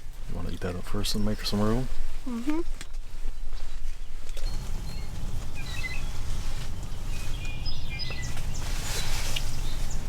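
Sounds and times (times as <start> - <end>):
small birds chirping: 3.2 - 10.0
steady low rumble: 4.5 - 10.0.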